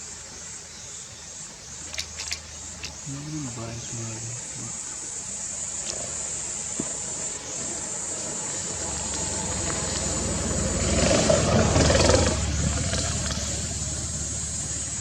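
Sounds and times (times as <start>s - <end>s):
vehicle engine running: 7.2s - 15.0s.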